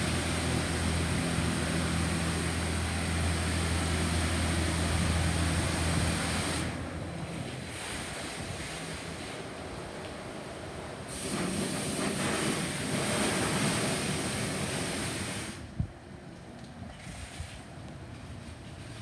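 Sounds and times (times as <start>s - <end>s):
machinery rumble: 0.0s - 7.9s
car wash water jets spraying: 0.0s - 15.7s.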